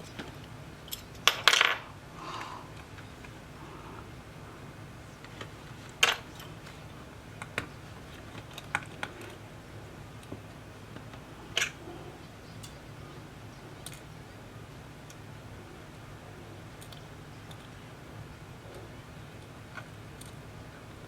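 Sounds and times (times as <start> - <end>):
steady low hum: 0.0 - 21.0
small tools clicking and tapping: 13.8 - 14.1.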